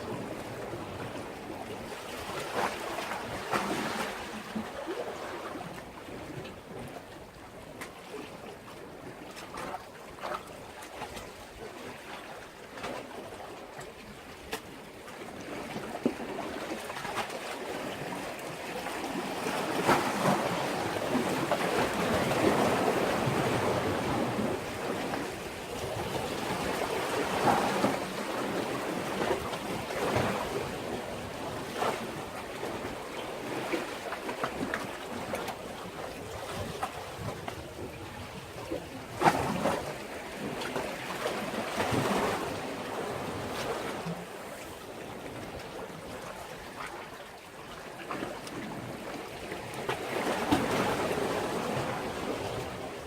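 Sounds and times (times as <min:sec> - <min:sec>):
sea waves against a breakwater: 0:00.0 - 0:53.0.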